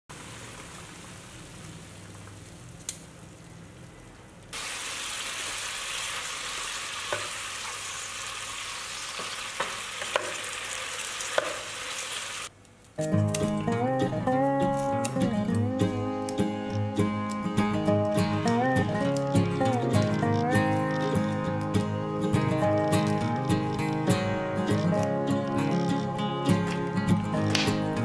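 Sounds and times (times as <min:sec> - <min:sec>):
broccoli sizzling in hot oil: 0:00.1 - 0:03.3, 0:04.6 - 0:12.5.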